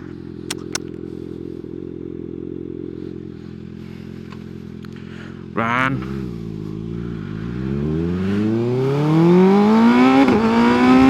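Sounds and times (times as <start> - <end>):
motorcycle engine running: 0.0 - 11.0
sharp clicks: 0.4 - 1.0.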